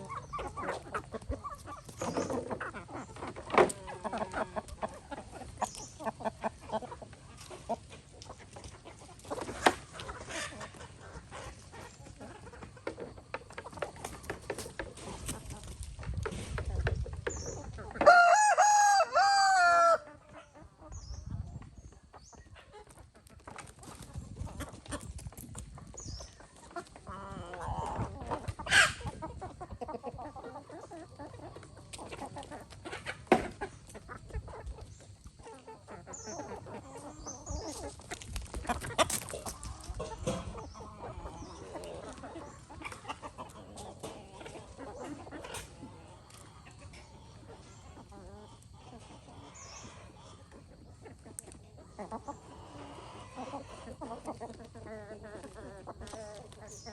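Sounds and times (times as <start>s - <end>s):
chickens clucking: 0.0s - 56.9s
rooster crowing: 18.0s - 20.0s.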